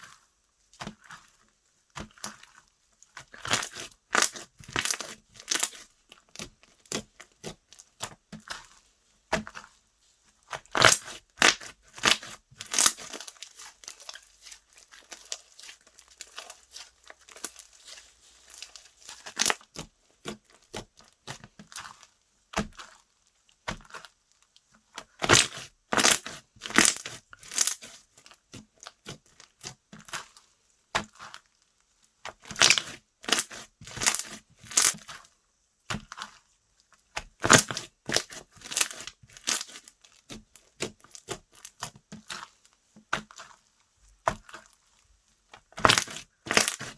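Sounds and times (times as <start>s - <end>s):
slime popping and crackling: 3.3s - 8.7s, 10.5s - 22.0s, 25.1s - 29.2s, 32.3s - 35.2s, 37.1s - 42.4s, 45.6s - 46.9s.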